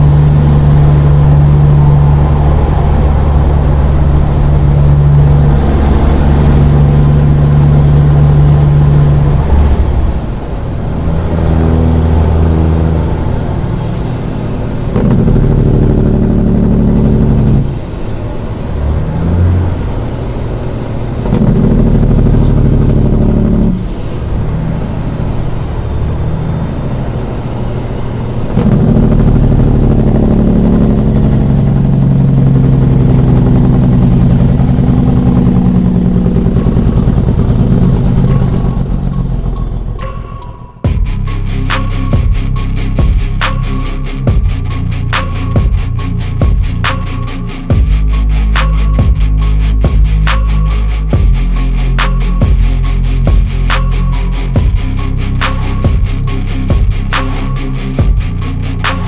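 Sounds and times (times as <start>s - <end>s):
turbo whistle: 0.0s - 16.2s, 30.5s - 49.6s, 50.3s - 59.0s
truck diesel engine under load: 0.0s - 59.0s.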